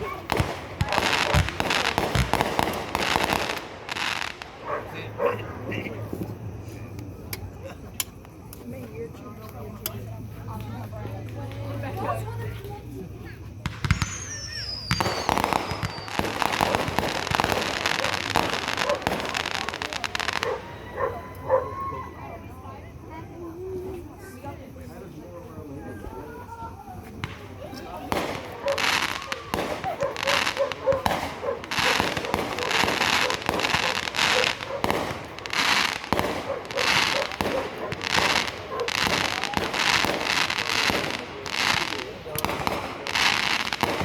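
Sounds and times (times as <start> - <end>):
fireworks crackling: 0.0 - 22.1, 26.0 - 44.0
falling firework whistle: 13.7 - 21.9.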